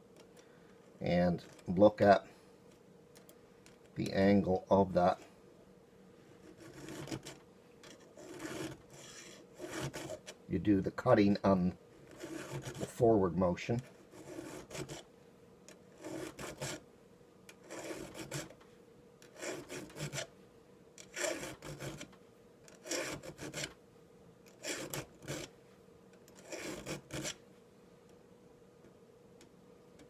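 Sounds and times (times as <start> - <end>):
file rasping on saw chain: 6.4 - 10.3, 12.0 - 13.0, 13.8 - 15.0, 15.9 - 16.8, 17.6 - 18.6, 19.2 - 20.3, 21.0 - 22.1, 22.7 - 23.7, 24.6 - 25.5, 26.4 - 27.4.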